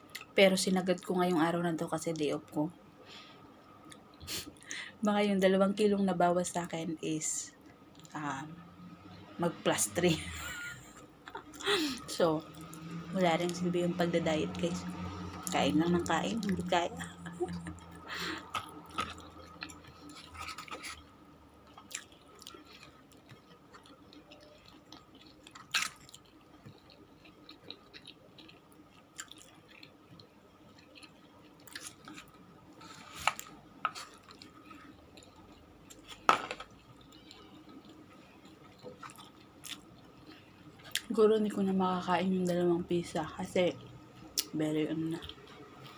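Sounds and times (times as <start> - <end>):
faint steady hum: 0.0 - 45.9
person chewing: 17.5 - 41.1.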